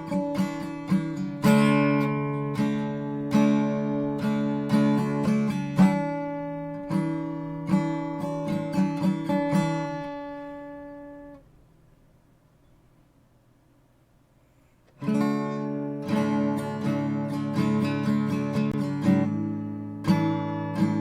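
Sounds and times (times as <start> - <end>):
acoustic guitar playing: 0.0 - 12.0, 14.9 - 21.0.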